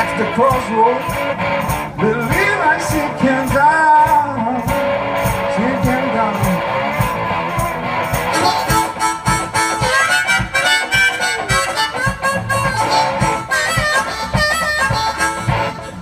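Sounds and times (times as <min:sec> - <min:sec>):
bass drum beat: 0:00.0 - 0:16.0
guitar chords: 0:00.0 - 0:16.0
blues harmonica solo: 0:06.6 - 0:16.0.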